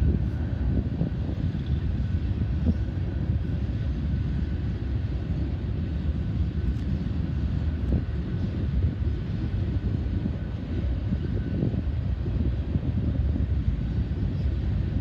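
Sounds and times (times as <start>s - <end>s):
distant freight train rumble: 0.0s - 15.0s
wind on microphone: 0.0s - 15.0s.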